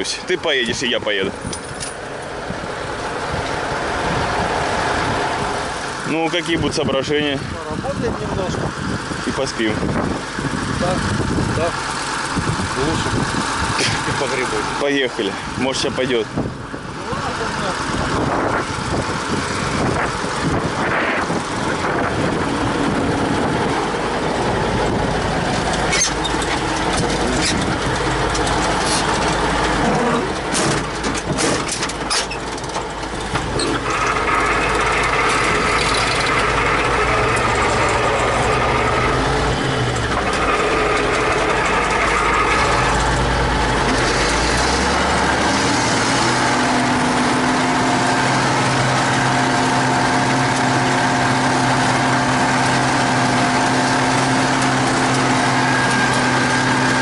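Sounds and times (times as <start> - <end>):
tractor diesel engine running: 0.0 - 57.0
sharp clicks and knocks: 25.5 - 39.2.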